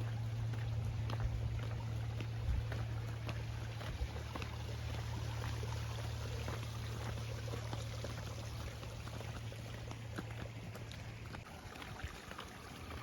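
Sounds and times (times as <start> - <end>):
steady low hum: 0.0 - 11.4
water running and pouring: 3.0 - 13.0.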